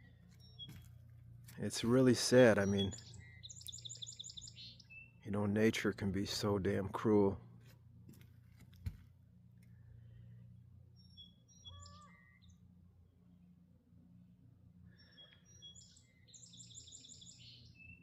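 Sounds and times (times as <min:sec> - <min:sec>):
low steady hum: 0:00.0 - 0:18.0
faint bird chirps: 0:02.6 - 0:05.2, 0:11.0 - 0:12.7, 0:14.8 - 0:18.0.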